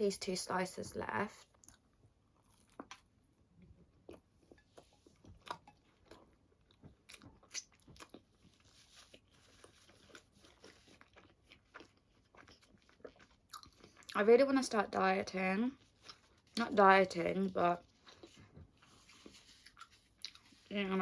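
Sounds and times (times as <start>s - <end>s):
chewing and crunching: 1.3s - 14.2s, 15.7s - 21.0s
wet mouth clicks: 7.1s - 7.8s.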